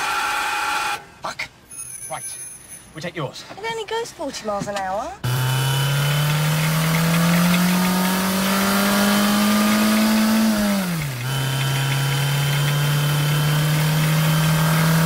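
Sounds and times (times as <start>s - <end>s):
car engine accelerating: 5.2s - 15.0s.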